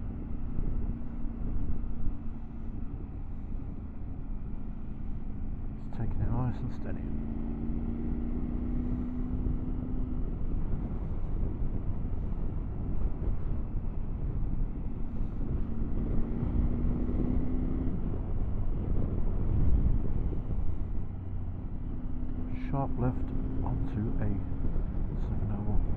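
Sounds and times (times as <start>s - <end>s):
motorcycle engine cruising: 0.0s - 25.9s
wind rush over microphone: 8.4s - 22.3s, 23.3s - 25.9s.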